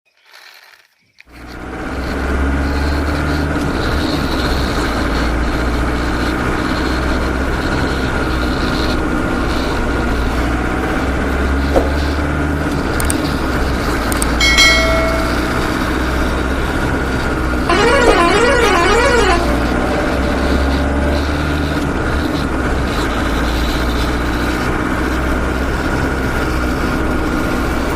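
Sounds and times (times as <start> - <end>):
vehicle engine running: 1.4 - 27.9
short horn toot: 17.7 - 21.6.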